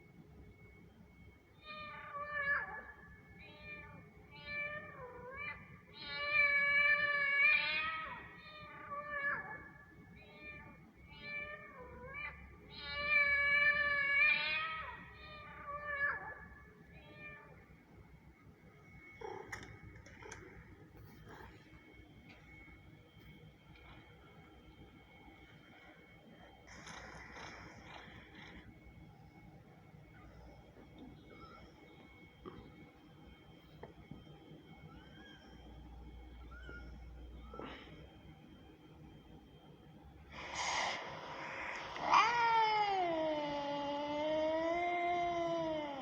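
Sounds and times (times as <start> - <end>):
kitten meowing: 41.8 - 44.7.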